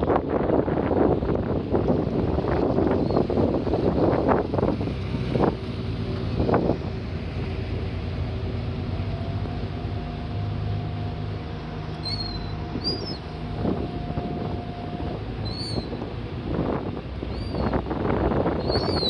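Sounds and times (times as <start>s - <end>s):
wind on microphone: 0.0s - 8.0s, 10.8s - 19.0s
boat engine running: 0.0s - 19.0s
high bird calls: 12.0s - 13.3s, 15.4s - 16.0s, 17.3s - 17.8s, 18.6s - 19.0s.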